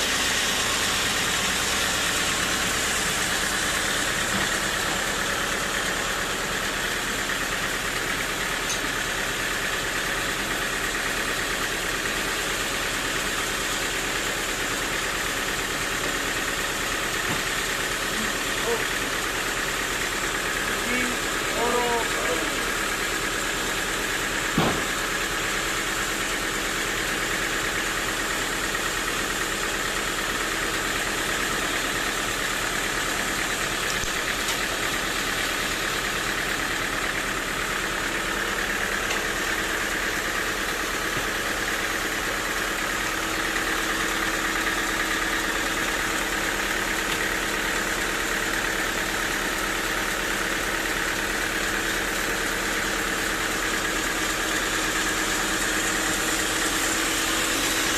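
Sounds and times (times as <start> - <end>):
sawmill machinery humming: 0.0 - 57.9.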